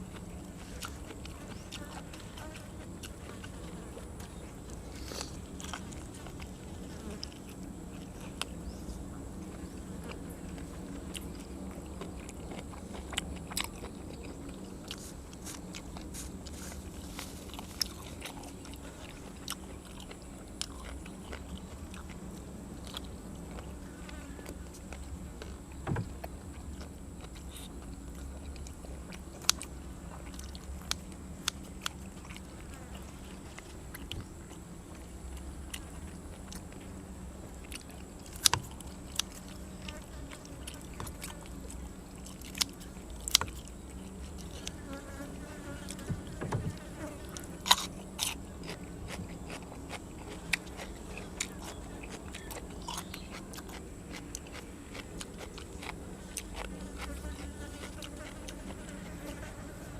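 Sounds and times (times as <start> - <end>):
quiet chewing: 0.0 - 59.9
crunching bites: 37.7 - 44.8, 46.7 - 59.0.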